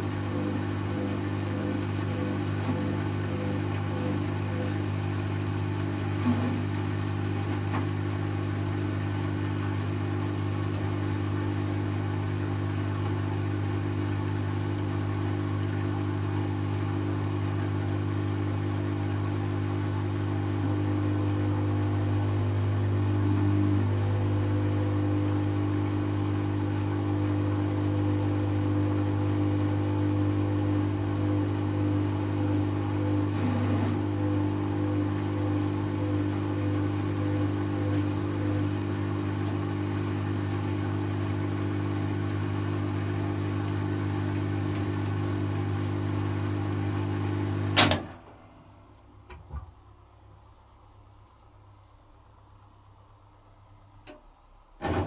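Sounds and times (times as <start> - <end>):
washing machine spinning: 0.0 - 55.0.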